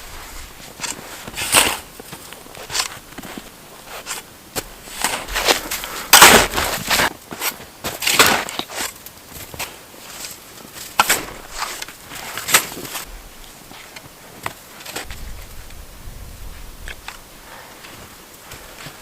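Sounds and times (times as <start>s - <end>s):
shovel crunching snow: 0.0s - 13.1s.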